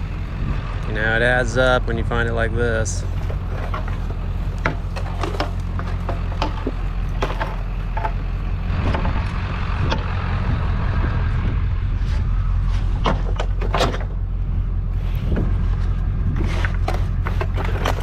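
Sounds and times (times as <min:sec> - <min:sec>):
low engine hum: 0:00.0 - 0:18.0
scrap metal clanking: 0:02.9 - 0:08.3, 0:15.0 - 0:18.0.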